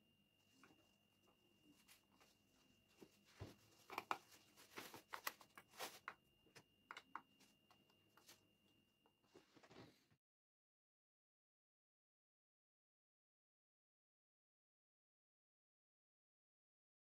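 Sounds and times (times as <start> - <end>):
faint high-pitched whine: 0.0 - 10.2.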